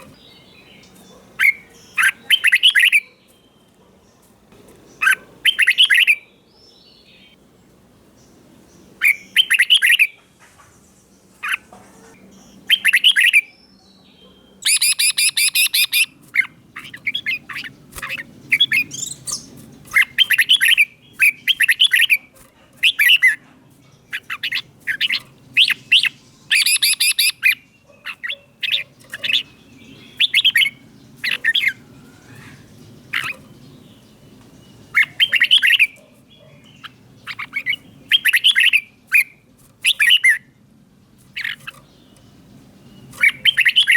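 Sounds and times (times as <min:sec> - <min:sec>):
bulbul singing whistled phrases: 0:00.0 - 0:03.7, 0:05.0 - 0:07.4, 0:09.0 - 0:10.2, 0:12.4 - 0:23.4, 0:24.1 - 0:33.4, 0:34.8 - 0:40.5, 0:42.8 - 0:43.9.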